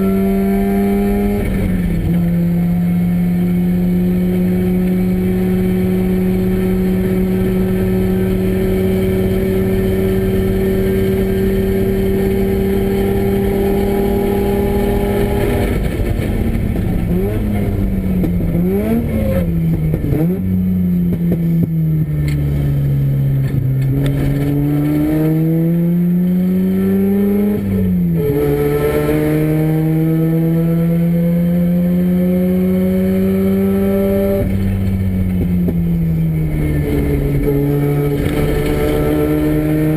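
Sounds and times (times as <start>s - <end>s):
rotary engine revving: 36.4s - 39.9s.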